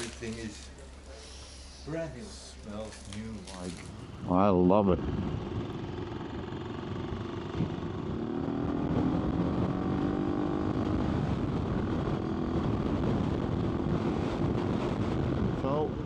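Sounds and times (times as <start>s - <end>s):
wind noise: 3.7s - 16.0s
motorcycle engine accelerating: 3.8s - 16.0s.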